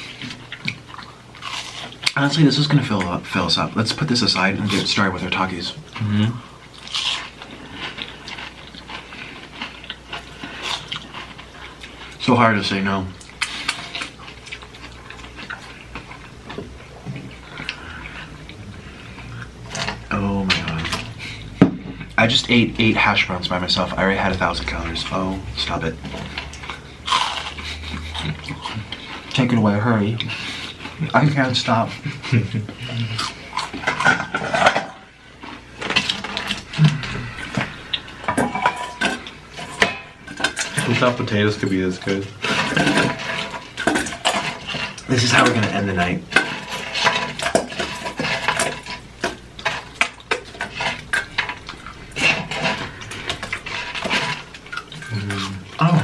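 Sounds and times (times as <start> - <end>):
person eating crunchy food: 0.0 - 3.1, 4.4 - 31.2, 31.8 - 56.0
short low hum: 36.2 - 39.0.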